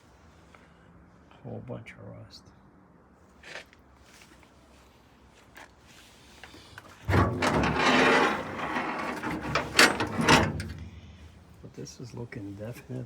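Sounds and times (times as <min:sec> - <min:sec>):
loud scraping and sliding: 0:07.0 - 0:11.1.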